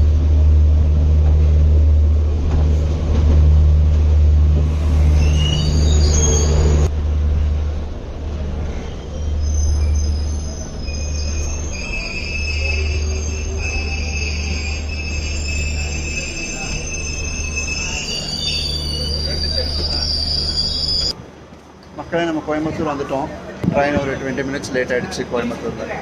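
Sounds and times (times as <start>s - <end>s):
train rumbling: 0.0s - 21.7s
wheels squealing: 4.6s - 6.9s, 8.6s - 21.2s.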